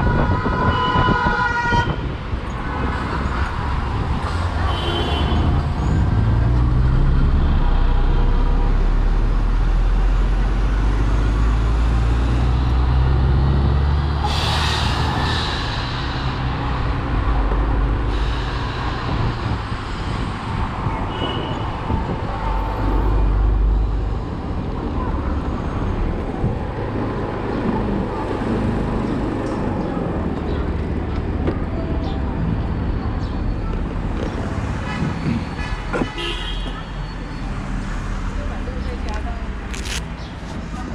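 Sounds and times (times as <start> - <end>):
road noise: 0.0 - 40.9
brief loud hiss: 14.2 - 16.4.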